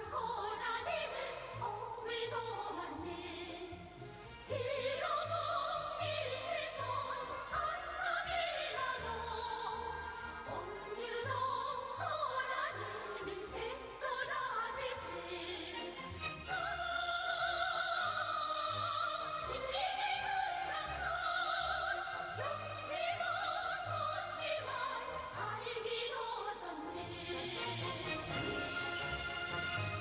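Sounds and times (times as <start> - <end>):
operatic singing: 0.0 - 30.0
orchestral accompaniment: 15.6 - 16.9, 27.1 - 30.0.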